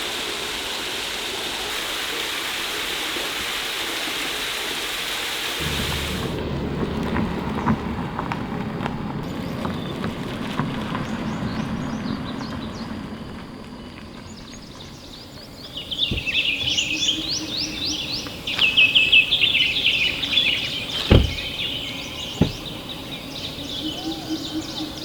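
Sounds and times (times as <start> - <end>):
low outdoor rumble: 5.6 - 18.5
birds chirping: 5.6 - 25.0
dull thumps: 15.7 - 17.6, 20.4 - 23.2.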